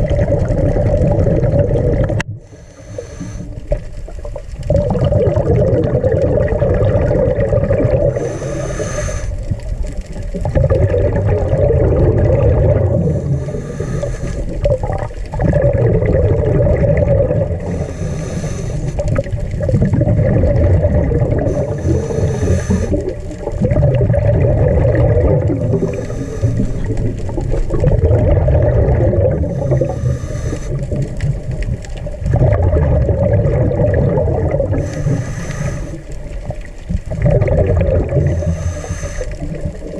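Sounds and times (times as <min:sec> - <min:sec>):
exhaled bubbles gurgling: 0:00.0 - 0:39.9
scuba regulator inhale hiss: 0:02.4 - 0:03.7, 0:08.1 - 0:09.5, 0:13.0 - 0:14.6, 0:17.6 - 0:19.1, 0:21.4 - 0:23.5, 0:25.6 - 0:27.1, 0:29.4 - 0:31.1, 0:34.7 - 0:36.2, 0:38.1 - 0:39.7.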